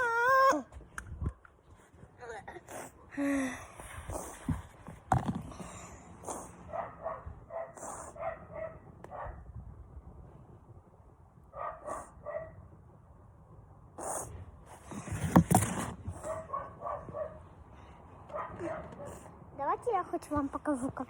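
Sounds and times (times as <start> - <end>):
dog barking and yipping: 6.7 - 9.4, 16.2 - 17.4, 18.3 - 19.2.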